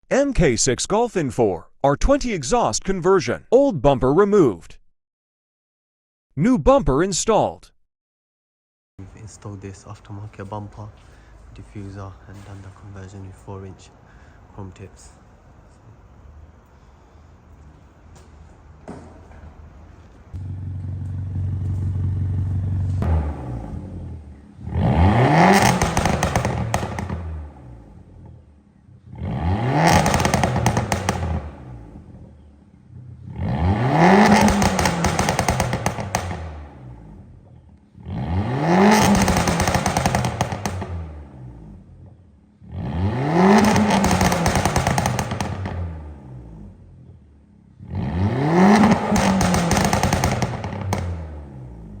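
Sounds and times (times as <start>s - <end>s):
exhaust popping and crackling: 20.3s - 52.0s
car engine revving: 20.4s - 52.0s.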